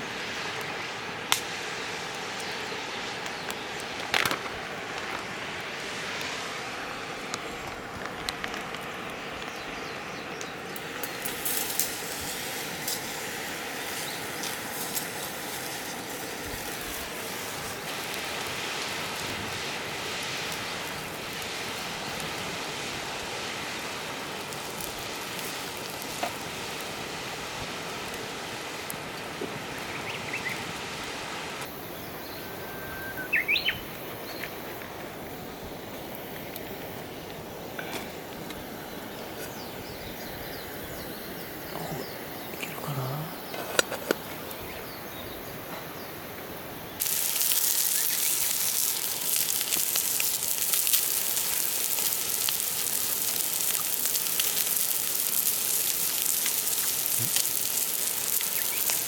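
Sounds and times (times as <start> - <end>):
crackling sizzling hiss: 0.0 - 59.0
outdoor ambience: 0.0 - 59.0.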